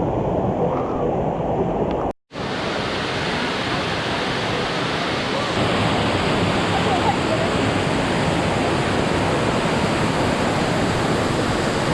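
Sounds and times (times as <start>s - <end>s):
waterfall rushing: 2.4s - 11.9s.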